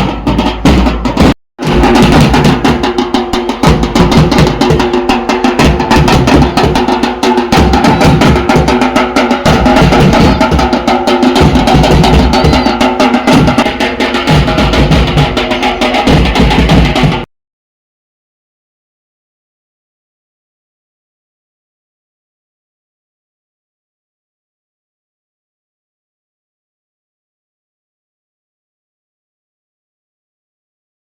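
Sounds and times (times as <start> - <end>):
loud fast drumming: 0.0 - 17.3.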